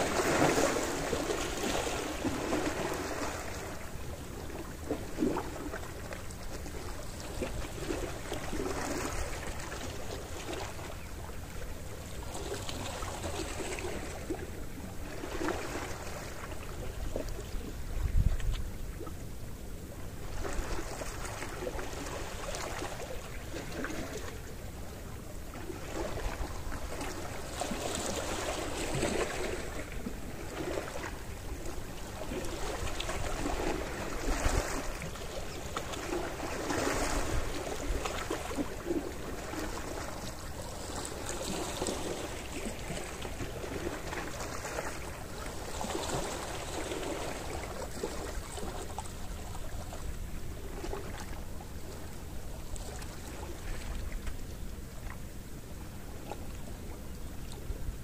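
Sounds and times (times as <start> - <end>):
sea waves washing onto shore: 0.0 - 11.4.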